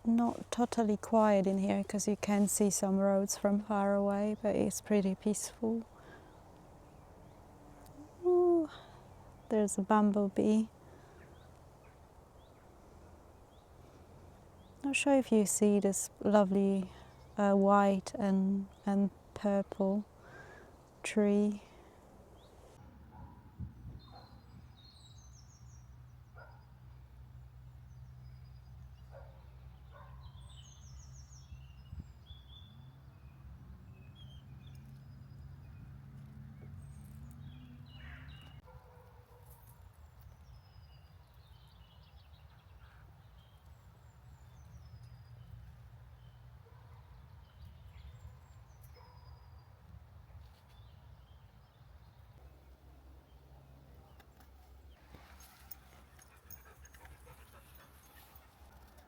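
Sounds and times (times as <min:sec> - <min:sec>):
distant road traffic hum: 0:00.0 - 0:23.9, 0:32.5 - 0:39.6
small birds chirping: 0:23.8 - 0:26.7, 0:27.9 - 0:36.0, 0:40.0 - 0:50.0.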